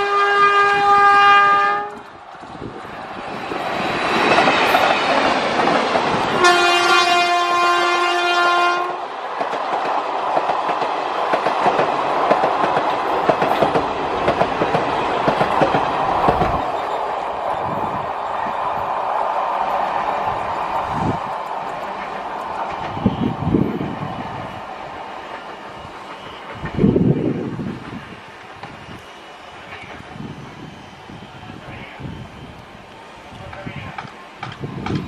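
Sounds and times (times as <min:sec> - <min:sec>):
train horn blast: 0:00.0 - 0:02.0, 0:06.4 - 0:09.0
train coaches rumbling past: 0:00.0 - 0:35.0
wheels clacking over rail joints: 0:01.8 - 0:07.6, 0:09.3 - 0:17.7, 0:33.5 - 0:35.0.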